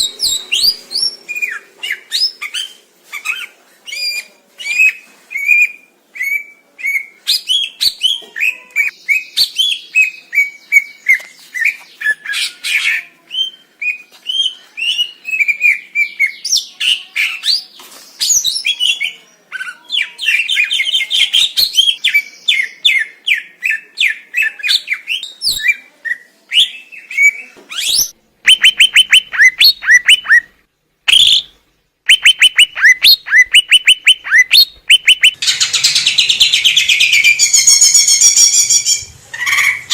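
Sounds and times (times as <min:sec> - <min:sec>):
bird singing chirps and trills: 0:32.1 - 0:39.8.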